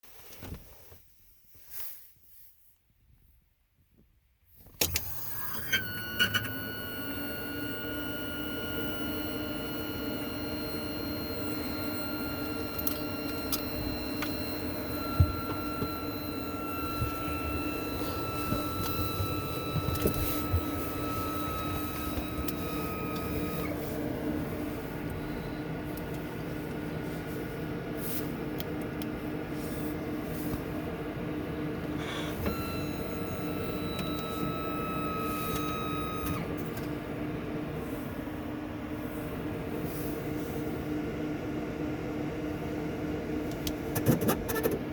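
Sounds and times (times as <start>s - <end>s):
thin whining tones: 4.9s - 26.6s, 32.0s - 36.5s
faint pulsing hum: 4.9s - 43.9s
steady running noise: 5.8s - 33.1s.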